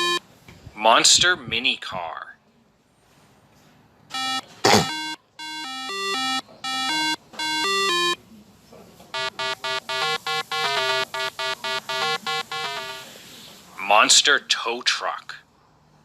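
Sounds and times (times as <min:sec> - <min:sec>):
electronic beeping ringtone tune: 0:00.0 - 0:00.2, 0:04.1 - 0:08.2, 0:09.2 - 0:13.1.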